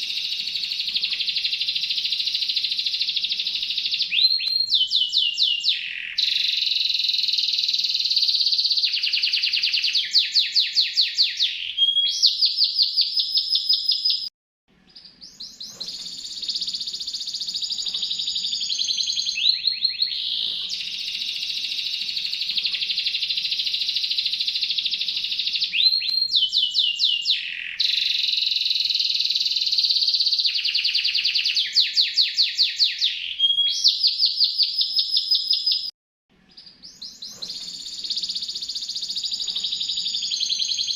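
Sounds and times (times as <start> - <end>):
songbird trilling: 14.9 - 35.8, 36.5 - 40.9.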